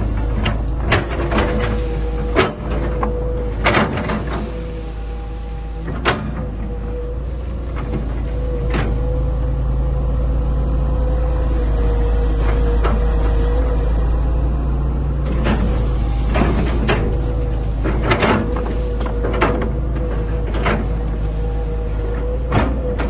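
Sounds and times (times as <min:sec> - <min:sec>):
metal clanks and knocks: 0:00.0 - 0:04.6, 0:05.8 - 0:06.8, 0:15.3 - 0:23.0
diesel engine running with whine: 0:00.0 - 0:23.0.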